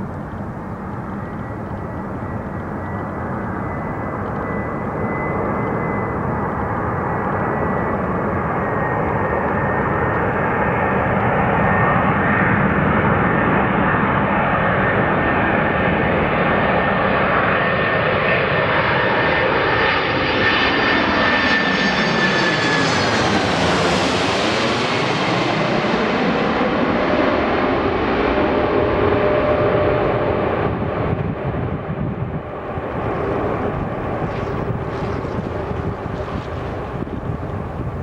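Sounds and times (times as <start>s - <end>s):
jet airliner engines roaring: 0.0s - 38.0s
high fan whine: 29.1s - 38.0s.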